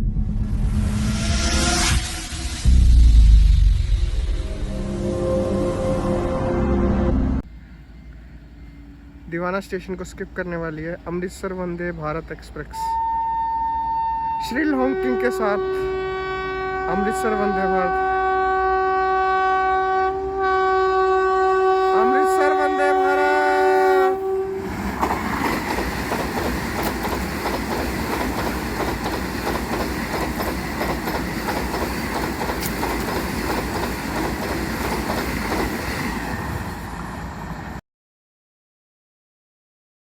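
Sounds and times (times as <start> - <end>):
train rushing past: 0.0 - 12.9, 21.9 - 37.8
train horn: 4.4 - 7.4, 12.7 - 24.8
rail clatter: 24.6 - 36.9.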